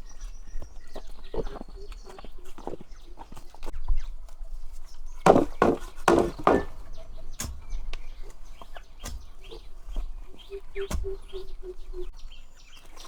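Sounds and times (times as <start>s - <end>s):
heavy chopping strokes: 5.3s - 6.8s
sharp knocks and taps: 5.3s - 6.8s.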